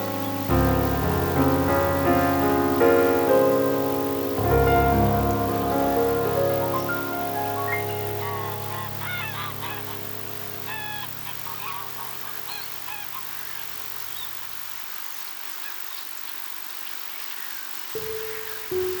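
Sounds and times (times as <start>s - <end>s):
background music: 0.0s - 12.9s
faint outdoor hiss: 0.0s - 19.0s
geese honking: 4.4s - 13.9s.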